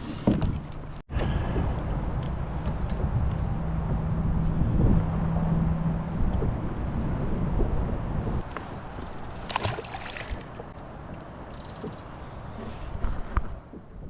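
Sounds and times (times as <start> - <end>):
wind and water rushing: 1.1 - 11.2.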